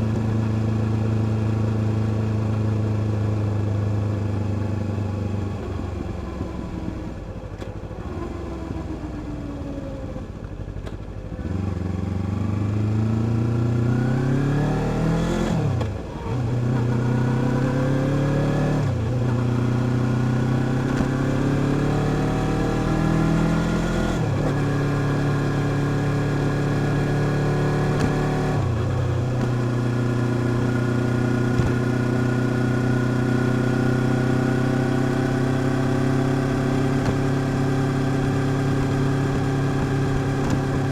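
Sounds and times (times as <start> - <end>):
vehicle engine accelerating: 11.3 - 40.9.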